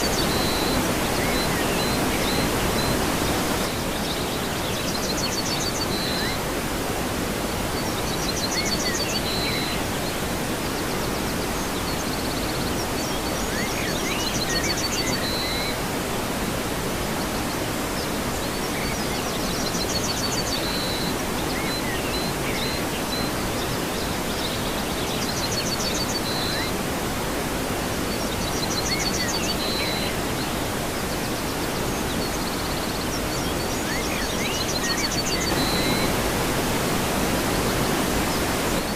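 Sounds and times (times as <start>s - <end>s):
high chirping birdsong: 0.0s - 6.4s, 17.3s - 26.8s, 28.1s - 38.9s
waterfall rushing: 0.0s - 38.9s.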